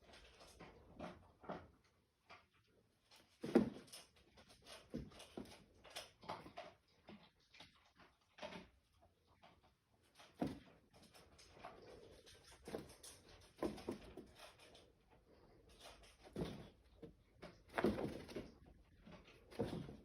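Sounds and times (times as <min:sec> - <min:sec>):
dog paws thumping on floor: 0:10.2 - 0:14.7, 0:16.2 - 0:20.0.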